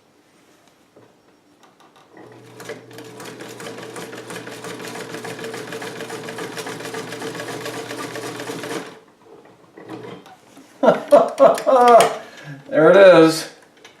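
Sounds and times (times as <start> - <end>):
electric sewing machine stitching: 2.1 - 9.0.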